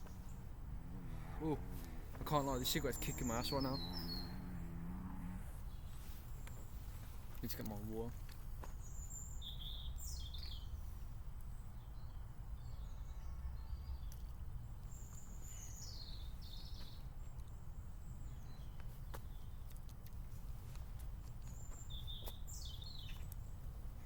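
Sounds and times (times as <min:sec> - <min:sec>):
steady low rumble: 0:00.0 - 0:07.5
birds chirping: 0:00.0 - 0:24.0.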